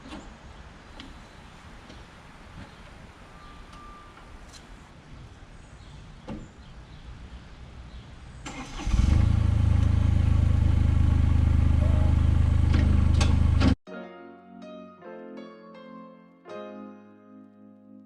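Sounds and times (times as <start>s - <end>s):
diesel engine running: 8.5s - 13.8s.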